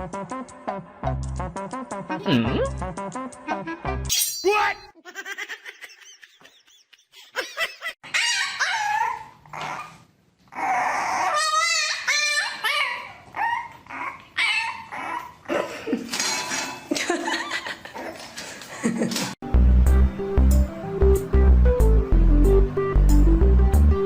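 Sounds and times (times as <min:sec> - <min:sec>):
dog whining and yipping: 0:08.0 - 0:15.4.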